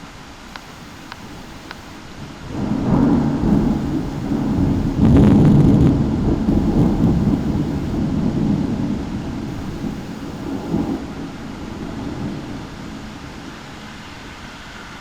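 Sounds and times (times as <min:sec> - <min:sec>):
rain hissing: 0:00.5 - 0:05.2, 0:06.4 - 0:08.1, 0:09.5 - 0:11.1
thunder rumbling: 0:00.7 - 0:11.0.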